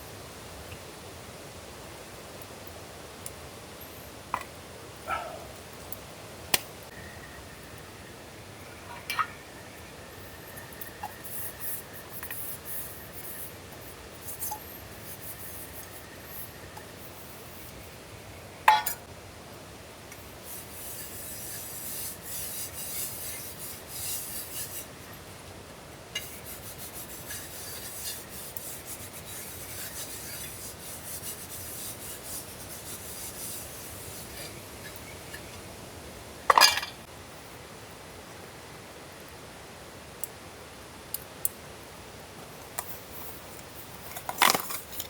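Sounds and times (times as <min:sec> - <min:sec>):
cookware scraping: 0:18.7 - 0:19.1, 0:36.5 - 0:37.1.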